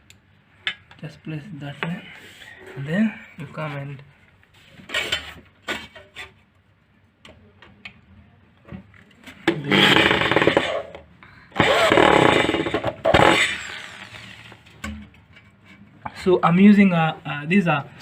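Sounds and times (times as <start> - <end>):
electric drill driving screw: 9.7 - 10.9, 11.6 - 14.4.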